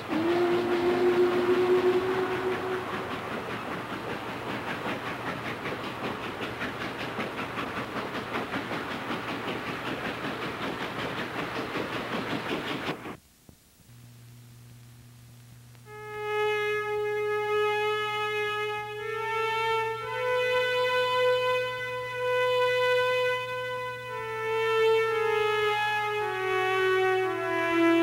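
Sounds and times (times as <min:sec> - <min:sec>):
music of long held notes: 0:00.0 - 0:04.2, 0:15.8 - 0:28.0
low hum: 0:00.0 - 0:12.4, 0:13.4 - 0:19.3
train rushing: 0:00.0 - 0:13.2.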